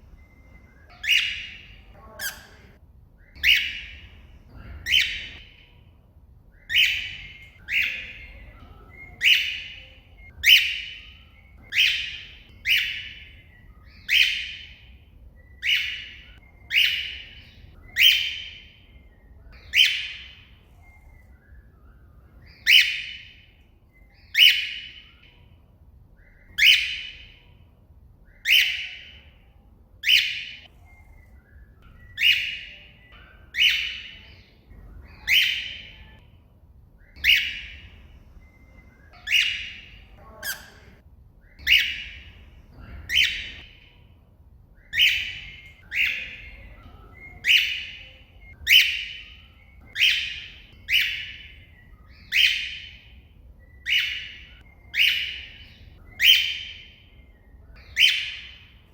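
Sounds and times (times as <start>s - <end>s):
cockatiel shrill calls: 0.9s - 2.7s, 3.3s - 4.0s, 4.8s - 5.6s, 9.1s - 14.8s, 15.6s - 18.6s, 22.4s - 23.3s, 26.3s - 27.3s, 35.0s - 36.2s, 37.0s - 37.8s, 39.1s - 41.0s, 41.6s - 42.2s, 43.1s - 43.8s, 44.8s - 46.7s, 47.3s - 53.1s, 53.8s - 56.9s, 57.8s - 58.7s.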